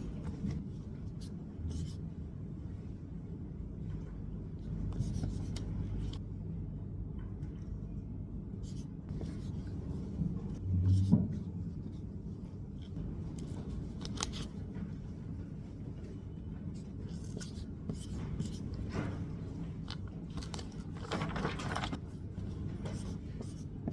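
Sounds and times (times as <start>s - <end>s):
low room hum: 0.0s - 23.9s
writing on paper: 16.8s - 18.7s, 22.4s - 23.9s.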